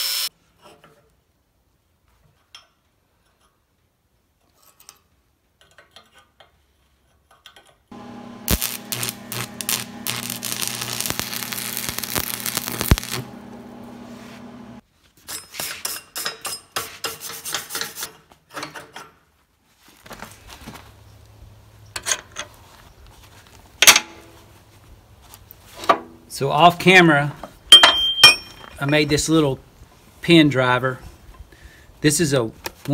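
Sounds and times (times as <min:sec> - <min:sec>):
low hum: 0:07.9 - 0:14.8
power tool grinding steel: 0:07.9 - 0:14.8.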